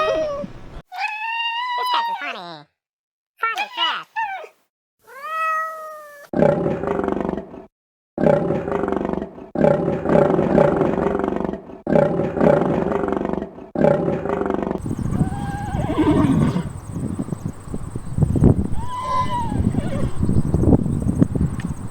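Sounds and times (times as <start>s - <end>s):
large animal roaring: 6.4s - 7.6s, 8.2s - 20.8s.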